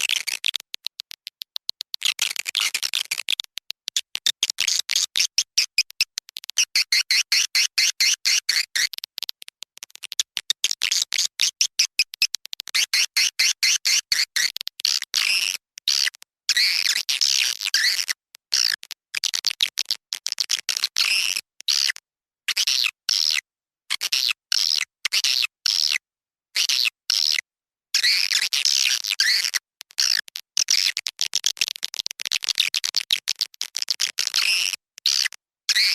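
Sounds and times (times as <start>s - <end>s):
swiftlet chirps and clicks: 0.4s - 7.0s, 7.8s - 12.8s.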